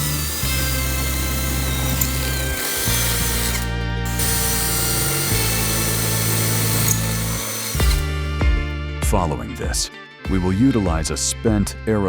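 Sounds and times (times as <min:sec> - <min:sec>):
power tool running: 0:00.0 - 0:08.4
background music: 0:00.0 - 0:12.0.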